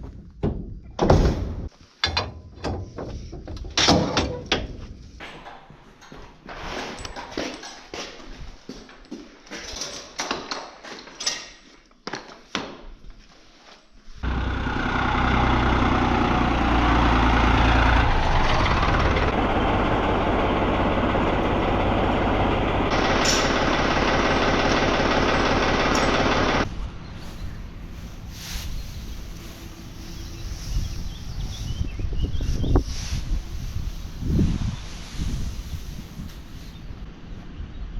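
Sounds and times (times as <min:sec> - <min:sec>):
engine running with pulsing rumble: 0:14.2 - 0:32.8.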